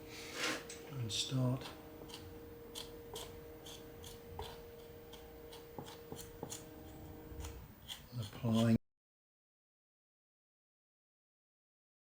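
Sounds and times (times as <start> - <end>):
faint steady hum: 0.0 - 8.8
filler spreading clicks and scrapes: 2.1 - 8.8.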